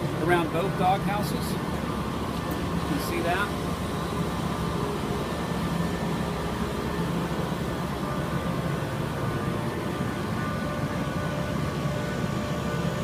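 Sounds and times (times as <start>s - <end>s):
mechanical drone: 0.0s - 13.0s.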